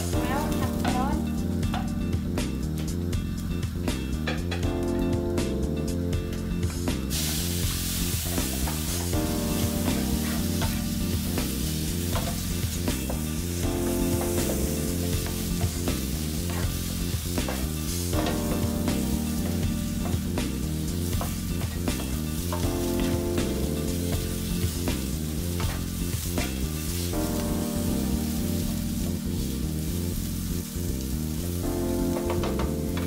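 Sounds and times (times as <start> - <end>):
background music: 0.0 - 33.0
food sizzling in a frying pan: 0.0 - 33.0
spatula scraping a pan: 7.2 - 11.0.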